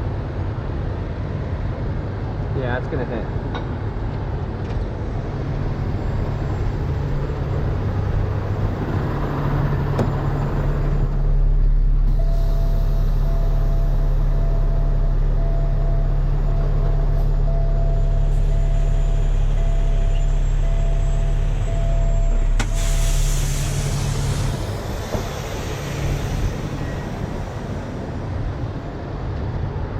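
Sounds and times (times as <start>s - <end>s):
diesel truck engine running: 0.0s - 29.9s
backup alarm beeping: 12.1s - 23.3s
air brake click: 22.6s - 26.0s
air brake hiss: 22.6s - 27.6s.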